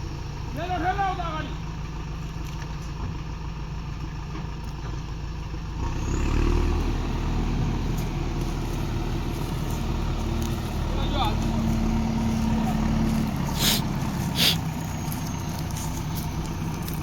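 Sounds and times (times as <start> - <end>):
heavy machine engine revving: 5.8 - 17.0.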